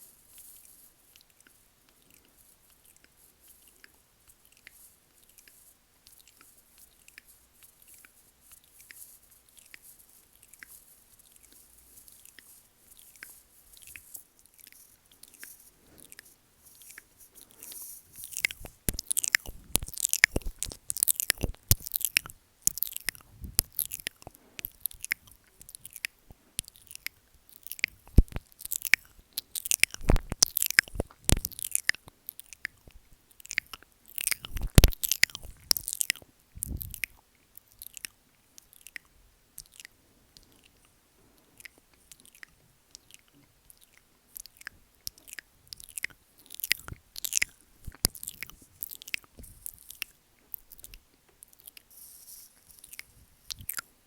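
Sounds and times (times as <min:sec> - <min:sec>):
wet mouth sounds on microphone: 0:12.2 - 0:40.8, 0:41.6 - 0:51.9, 0:52.8 - 0:53.9.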